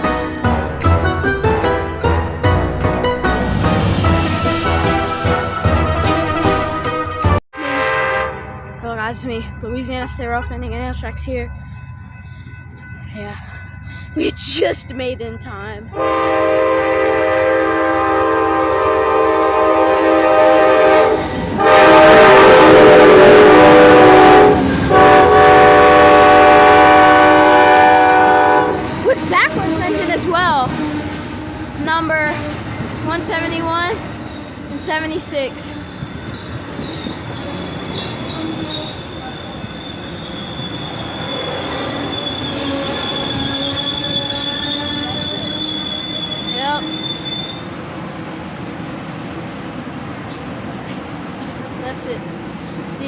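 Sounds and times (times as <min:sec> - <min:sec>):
passing train rumble: 0:00.0 - 0:53.0
train air horn blasts: 0:04.6 - 0:08.7, 0:16.0 - 0:29.0
train wheels squealing: 0:28.8 - 0:33.6, 0:34.2 - 0:47.8.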